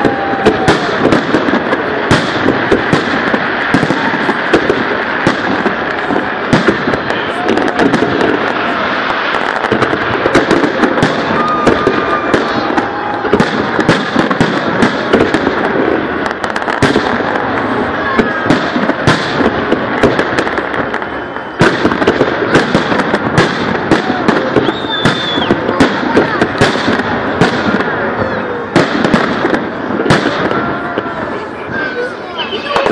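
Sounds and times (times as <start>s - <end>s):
firework whistle: 0.0s - 32.9s
fireworks bangs and crackles: 0.0s - 32.9s.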